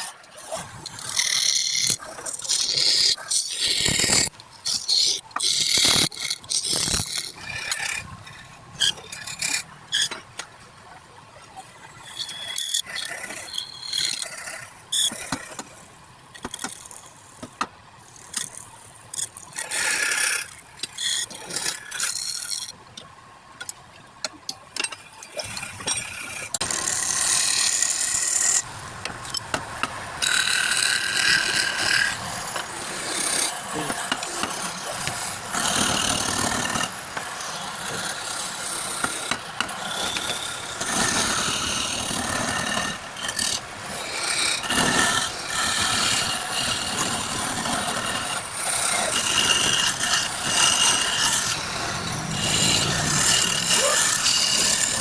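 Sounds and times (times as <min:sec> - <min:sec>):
sanding-like scraping: 0:26.3 - 0:55.0.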